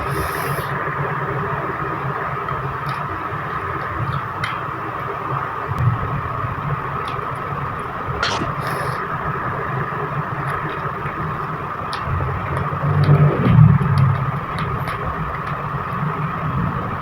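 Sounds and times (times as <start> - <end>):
mouth and utensil clicks: 8.2 - 8.9.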